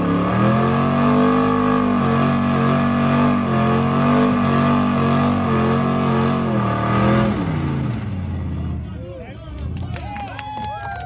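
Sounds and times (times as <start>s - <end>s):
car engine at high revs: 0.0s - 8.6s.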